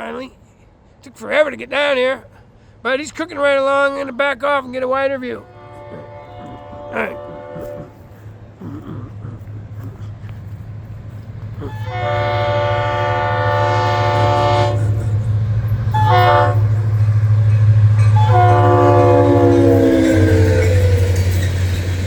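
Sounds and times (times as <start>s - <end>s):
diesel locomotive engine rumble: 0.0s - 22.0s
train horn blasts: 5.4s - 8.0s, 11.7s - 21.3s.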